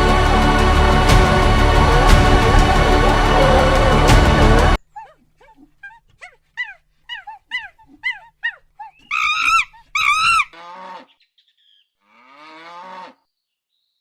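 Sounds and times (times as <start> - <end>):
animal yelping: 4.8 - 11.1
rasping animal calls: 4.8 - 11.2
loud pitched animal calls: 5.0 - 11.2.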